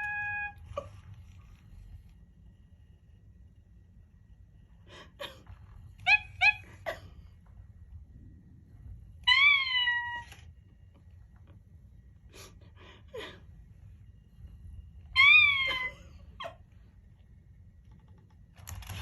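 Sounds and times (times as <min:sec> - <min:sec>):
robot dog meowing: 0:09.2 - 0:10.4.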